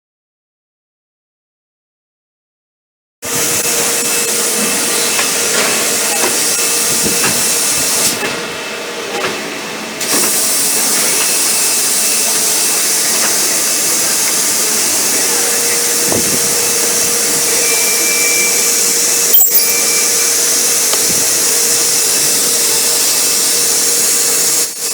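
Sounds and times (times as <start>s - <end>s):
high-pitched machine hiss: 3.3s - 8.2s, 10.0s - 24.9s.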